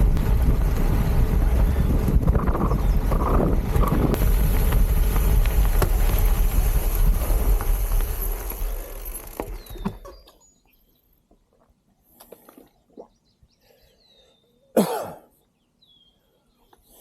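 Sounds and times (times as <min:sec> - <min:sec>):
gravel bike rolling: 0:00.0 - 0:10.8
birds chirping: 0:00.6 - 0:04.2, 0:08.5 - 0:17.0.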